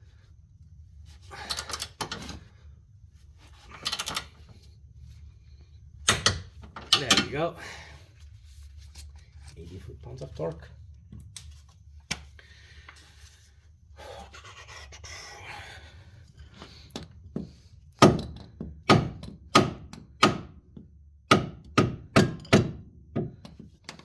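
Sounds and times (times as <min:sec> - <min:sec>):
soft scraping rustle: 0:08.1 - 0:10.8.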